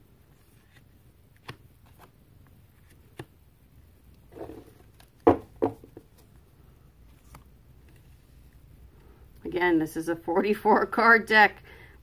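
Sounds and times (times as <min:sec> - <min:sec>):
cards rustling: 0:00.2 - 0:03.4, 0:06.0 - 0:08.6
cards knocking on table: 0:04.4 - 0:06.1.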